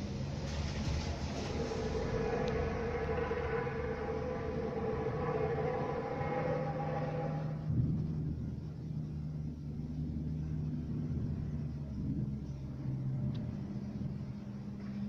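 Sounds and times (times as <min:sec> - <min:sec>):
low droning hum: 0:00.0 - 0:15.0
high wailing tone: 0:00.3 - 0:08.1.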